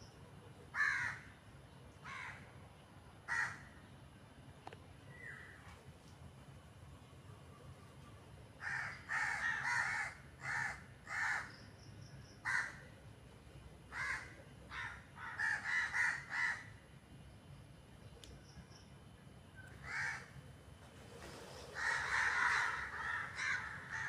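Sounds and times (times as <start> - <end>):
crows cawing: 0.7 - 1.4, 2.0 - 2.5, 3.3 - 3.8, 8.6 - 11.6, 12.4 - 12.9, 13.9 - 16.7, 19.8 - 20.4, 21.8 - 24.0.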